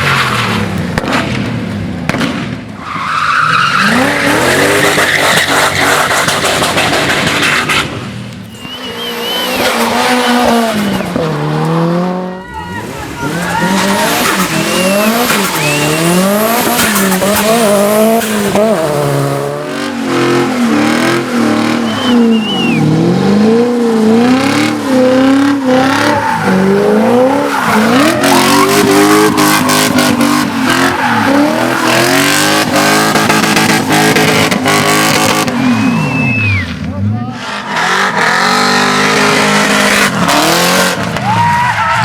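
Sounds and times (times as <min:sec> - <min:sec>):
car engine revving: 0:00.0 - 0:41.3
exhaust pops and crackles: 0:00.7 - 0:02.8, 0:05.2 - 0:09.7
tyre squeals: 0:08.5 - 0:10.9, 0:12.3 - 0:18.6, 0:21.4 - 0:23.1, 0:35.4 - 0:36.8.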